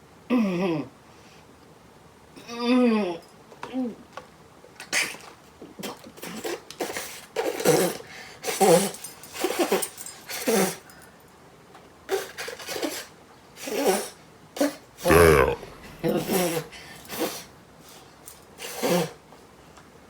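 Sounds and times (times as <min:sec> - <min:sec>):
man groaning: 0:15.1 - 0:16.3
sharp breathy noises: 0:15.1 - 0:16.4.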